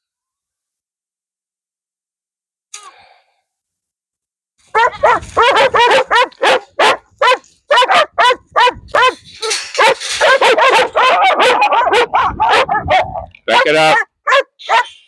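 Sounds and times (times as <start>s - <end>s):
dogs barking and yipping: 4.7s - 15.0s.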